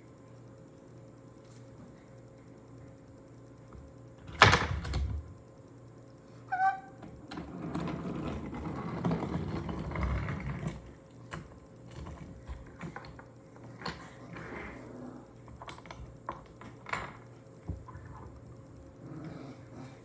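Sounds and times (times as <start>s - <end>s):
toy train rolling on wooden track: 7.3s - 10.8s.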